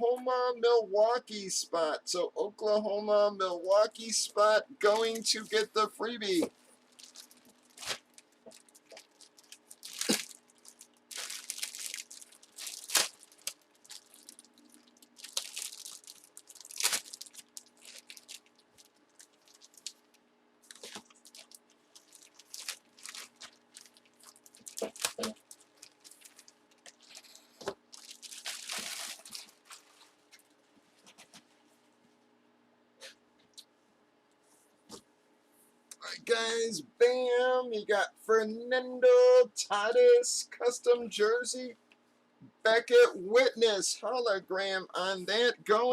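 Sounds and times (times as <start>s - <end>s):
packaging crinkling and tearing: 6.8s - 30.1s.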